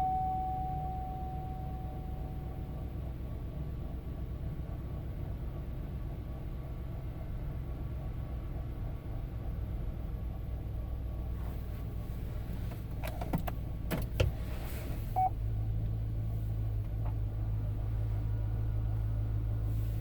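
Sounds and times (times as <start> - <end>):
short beep: 0.0 - 2.8
engine humming: 0.0 - 20.0.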